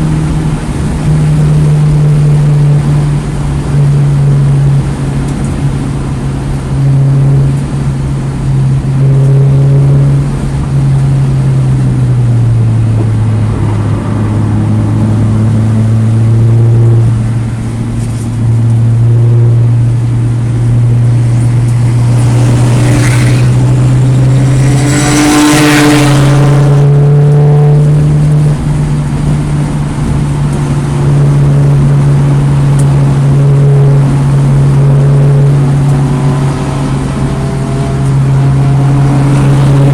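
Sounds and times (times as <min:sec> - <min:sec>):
car engine running hard: 0:00.0 - 0:39.9
harsh rushing noise: 0:00.0 - 0:39.9.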